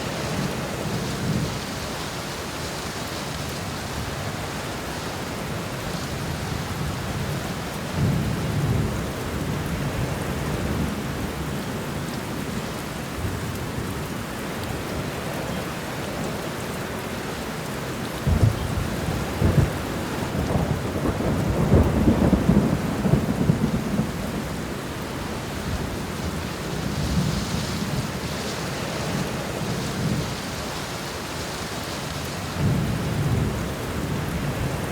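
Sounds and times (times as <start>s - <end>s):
heavy rain hissing: 0.0s - 34.9s
thunder cracks and rumbles: 18.2s - 24.8s.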